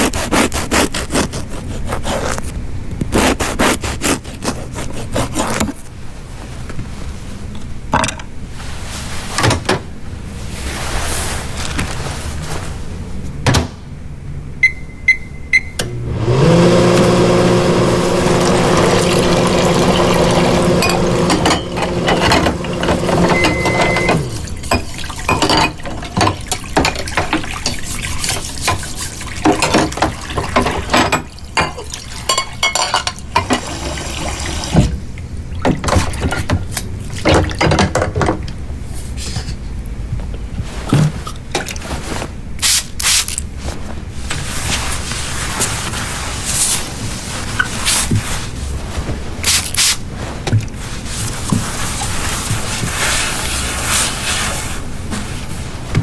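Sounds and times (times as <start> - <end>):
appliance beeps: 14.6 - 16.1, 19.1 - 24.4
appliance motor humming: 15.8 - 24.6
liquid being poured: 18.0 - 23.5, 24.3 - 32.3
kitchen clinks and knocks: 20.0 - 27.8, 29.5 - 33.7.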